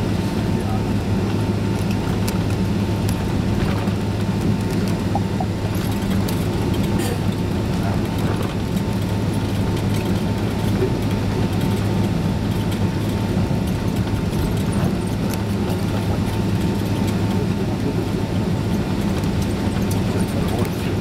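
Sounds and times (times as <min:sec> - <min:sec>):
jet engines droning in cabin: 0:00.0 - 0:21.0
faint steady whine: 0:02.6 - 0:08.6.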